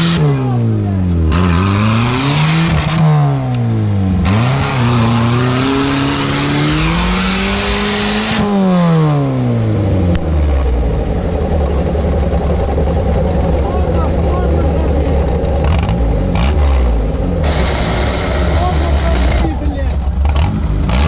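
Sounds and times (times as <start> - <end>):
car engine revving: 0.0 - 21.0
loud rushing noise: 4.3 - 19.8.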